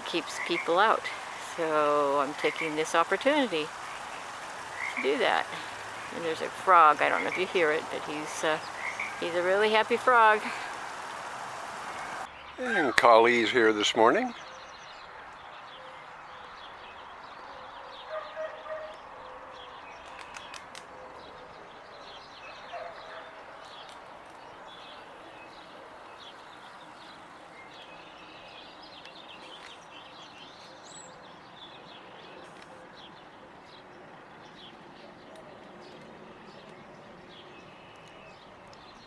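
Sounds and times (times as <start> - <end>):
steady outdoor hiss: 0.0 - 14.9, 24.0 - 39.0
small birds chirping: 0.0 - 15.1.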